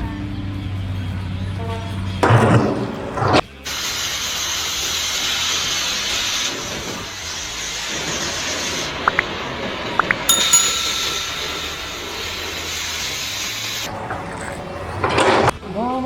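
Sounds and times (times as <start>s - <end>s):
short high chirps: 10.3s - 12.9s.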